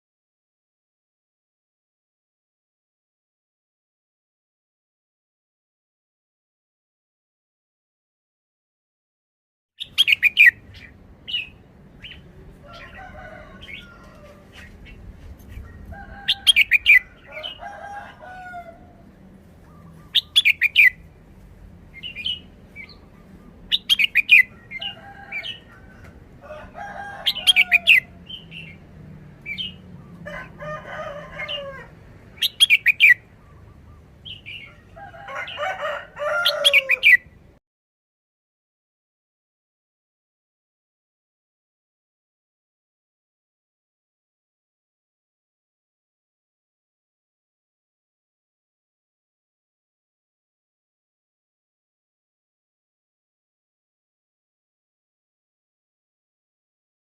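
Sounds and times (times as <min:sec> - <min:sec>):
bird chirping song: 0:09.8 - 0:17.6, 0:19.0 - 0:26.4, 0:27.2 - 0:30.2, 0:31.4 - 0:35.6.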